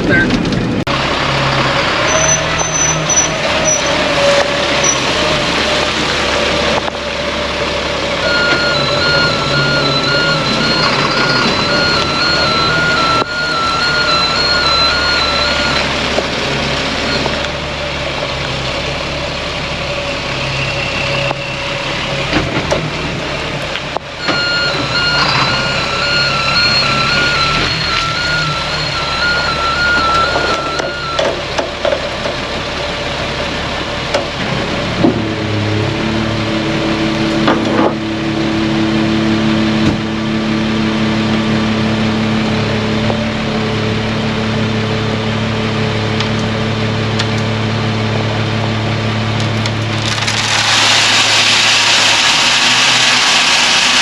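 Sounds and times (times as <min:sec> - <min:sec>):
dump truck engine running: 0:00.0 - 0:54.0
reversing alarm beeping: 0:08.2 - 0:17.5, 0:24.2 - 0:31.5.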